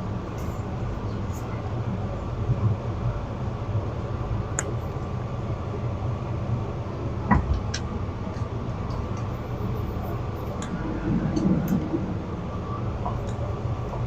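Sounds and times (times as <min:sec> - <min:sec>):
wind buffeting microphone: 0:05.2 - 0:14.0.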